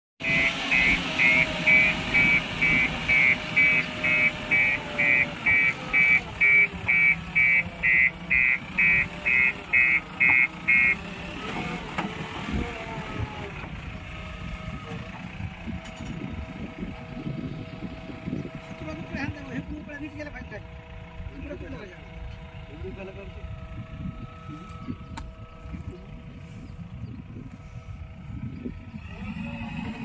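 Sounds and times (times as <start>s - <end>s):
reversing alarm beeping: 0.2s - 11.0s
diesel engine running: 0.2s - 30.0s.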